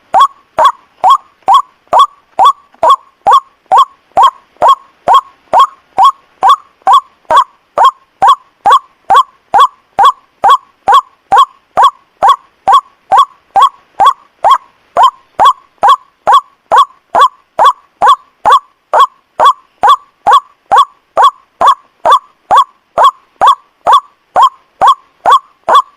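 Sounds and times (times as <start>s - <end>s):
waterhen calling: 0.0s - 25.9s.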